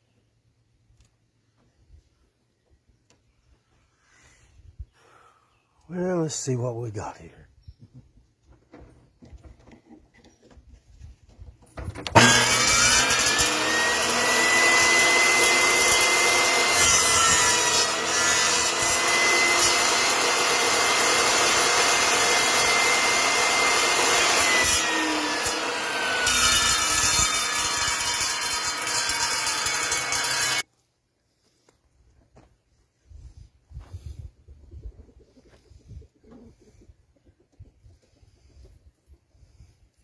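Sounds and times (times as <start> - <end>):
table saw blade whine: 11.9 - 30.6
saw cutting wood: 11.9 - 30.7.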